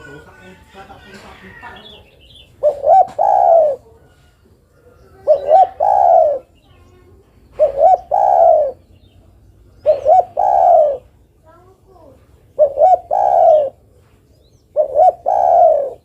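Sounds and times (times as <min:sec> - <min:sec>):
dove cooing: 0:01.5 - 0:06.6, 0:07.4 - 0:09.0, 0:09.7 - 0:11.2, 0:12.4 - 0:14.0, 0:14.6 - 0:16.0.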